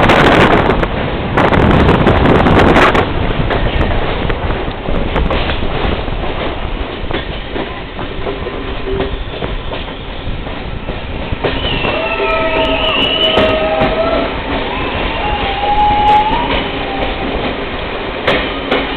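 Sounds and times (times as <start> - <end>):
train rumbling on rails: 0.0 - 18.9
wheels squealing against rails: 8.4 - 17.4.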